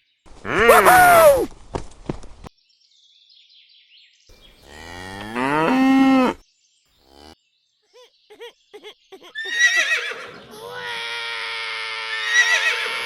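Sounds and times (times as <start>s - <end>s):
cow mooing: 4.6s - 6.4s, 7.1s - 7.4s.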